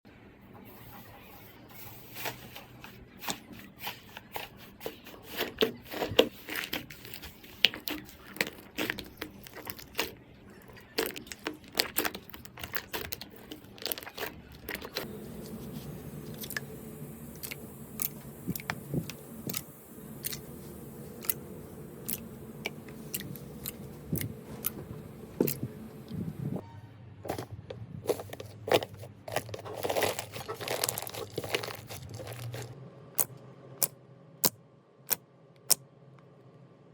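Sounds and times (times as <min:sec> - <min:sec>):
slime crackling and popping: 0:06.7 - 0:26.2.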